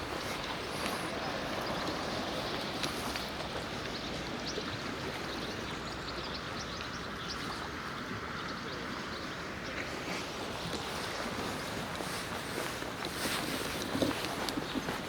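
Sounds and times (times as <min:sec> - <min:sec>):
small water splashes: 0:00.0 - 0:15.0
water lapping at shore: 0:00.0 - 0:15.0.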